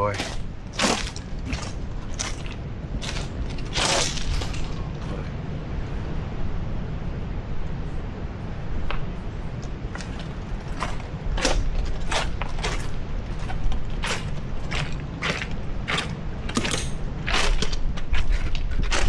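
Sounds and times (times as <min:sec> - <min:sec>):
footsteps crunching on beach rocks: 0:00.0 - 0:05.2, 0:09.0 - 0:19.0
wind rumble on microphone: 0:00.0 - 0:19.0.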